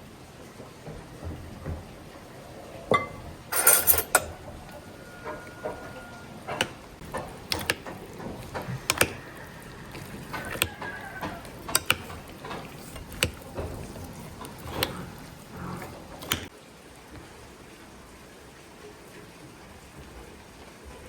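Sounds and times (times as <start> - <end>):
sharp clicks and knocks: 6.5 - 15.2, 16.0 - 16.5.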